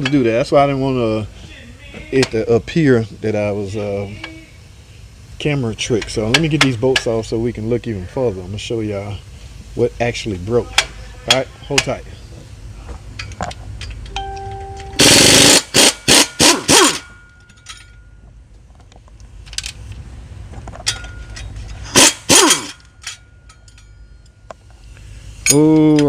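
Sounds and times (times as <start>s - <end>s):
impact wrench hammering bolts: 13.2s - 18.0s, 20.8s - 24.0s.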